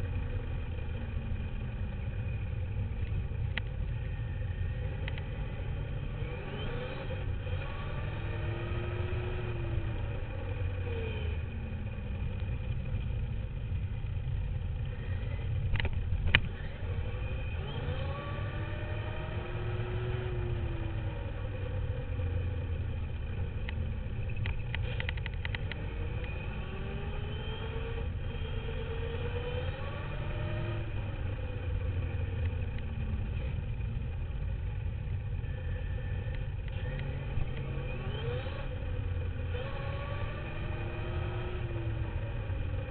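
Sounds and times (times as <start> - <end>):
rattle of clicks: 23.6 - 25.8.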